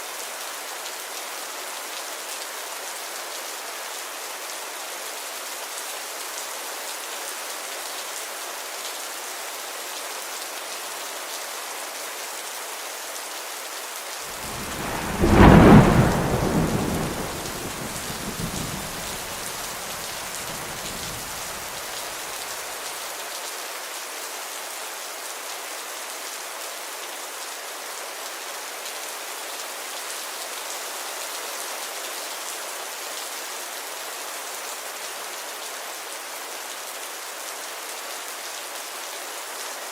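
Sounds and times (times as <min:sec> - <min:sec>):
thunder rumbling: 0:14.3 - 0:21.8
rain hissing: 0:14.3 - 0:22.7.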